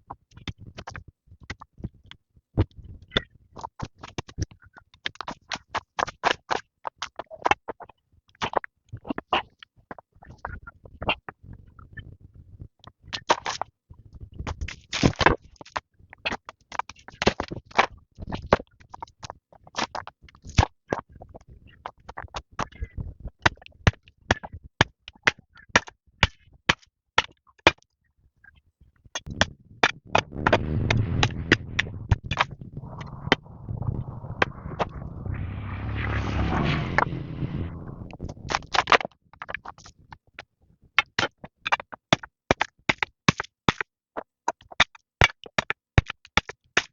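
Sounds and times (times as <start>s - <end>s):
rough scraping: 29.3s - 38.8s.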